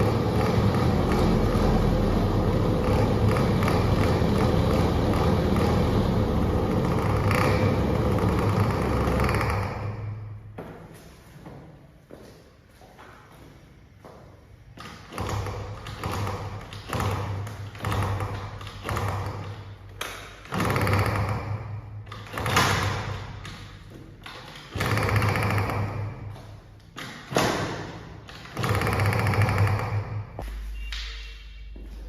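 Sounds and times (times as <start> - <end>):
scooter engine revving: 0.0 - 10.4, 15.0 - 26.4, 27.2 - 30.4.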